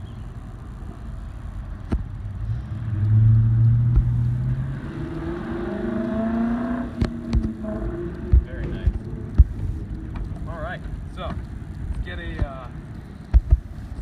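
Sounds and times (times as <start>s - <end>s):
car engine rumbling and revving: 0.0s - 14.0s
sharp knocks or clicks: 7.0s - 10.4s.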